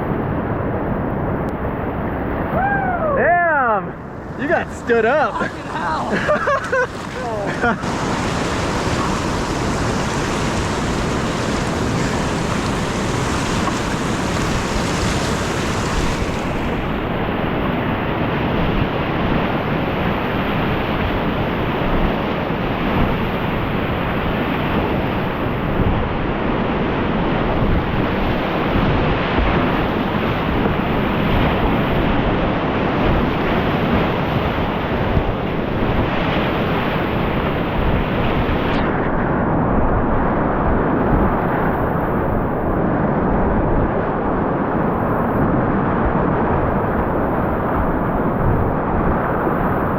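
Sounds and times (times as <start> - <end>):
wind buffeting the microphone: 0.0 - 49.9
whitewater rapids rushing: 3.8 - 17.2.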